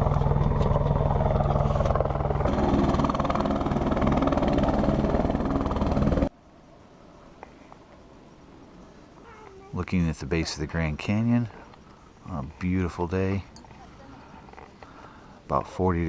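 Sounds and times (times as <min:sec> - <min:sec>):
helicopter engine and rotor: 0:00.0 - 0:06.3.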